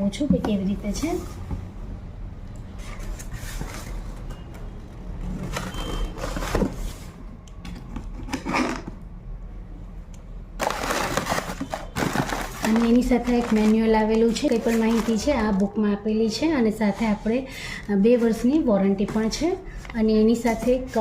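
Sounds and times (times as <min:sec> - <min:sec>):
cardboard box rustling: 0:10.6 - 0:15.3
foam packing rustling and scraping: 0:10.6 - 0:15.6.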